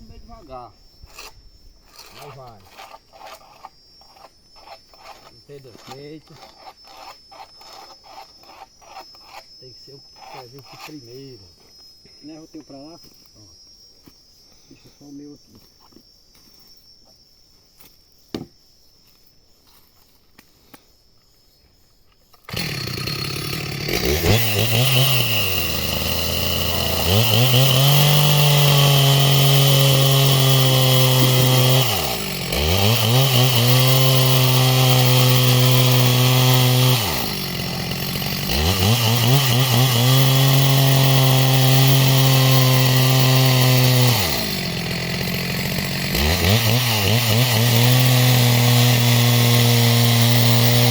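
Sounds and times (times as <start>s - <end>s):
chainsaw cutting timber: 1.1s - 11.1s, 22.4s - 50.9s.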